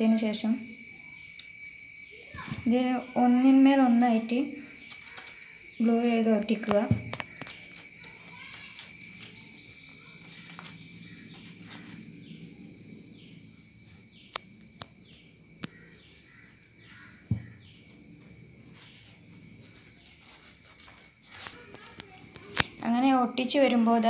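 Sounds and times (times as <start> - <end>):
steady high tone: 0.0 - 24.0
bird chirping: 1.0 - 18.0
paper being handled: 7.2 - 12.1, 18.2 - 21.9.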